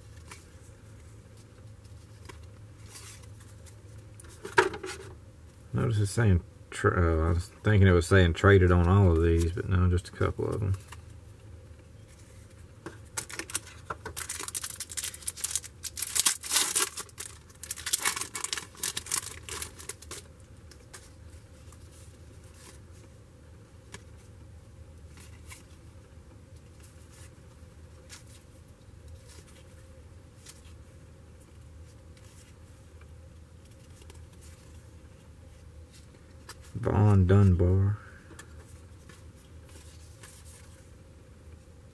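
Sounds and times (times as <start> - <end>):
card pack wrapper tearing: 13.2 - 20.3.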